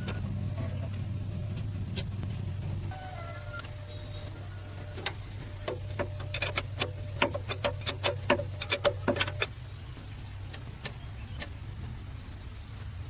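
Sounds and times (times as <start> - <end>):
steady low hum: 0.0 - 13.0
hand tools tapping metal: 5.0 - 9.5.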